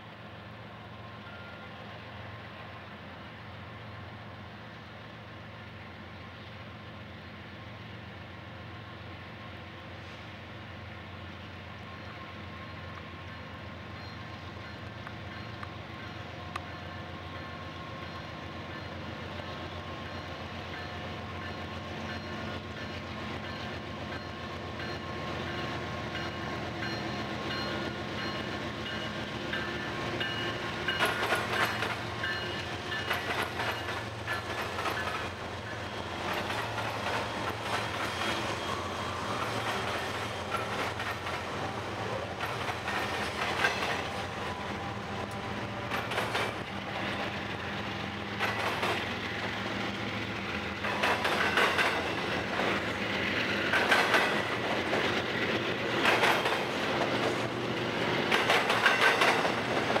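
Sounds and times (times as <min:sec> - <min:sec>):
diesel locomotives passing: 0:00.0 - 1:00.0
train wheels clacking: 0:12.7 - 1:00.0.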